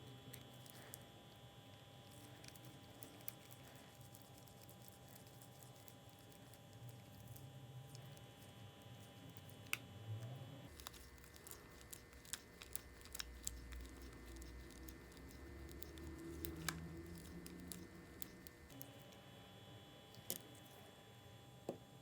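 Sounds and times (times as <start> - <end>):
small clicks and taps: 10.7 - 19.2.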